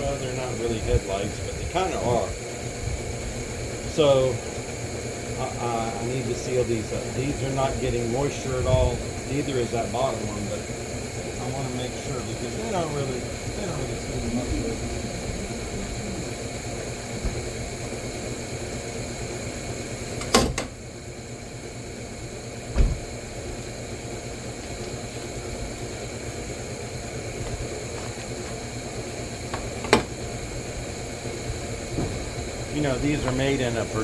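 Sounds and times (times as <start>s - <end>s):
machine hum: 0.0s - 34.0s
dull thump: 22.7s - 23.1s, 31.9s - 32.4s.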